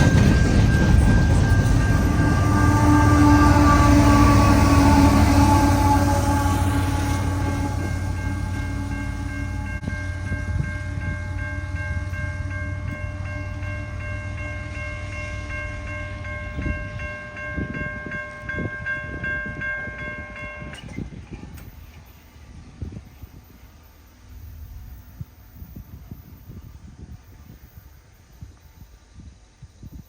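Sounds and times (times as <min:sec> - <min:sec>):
level-crossing bell ringing: 0:00.0 - 0:20.9
freight train rumble: 0:00.0 - 0:30.0.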